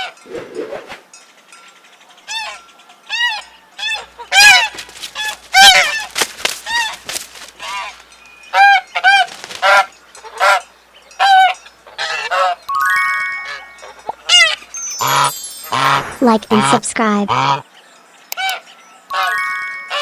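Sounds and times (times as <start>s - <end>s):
goose honking: 3.1s - 10.6s, 13.9s - 17.6s.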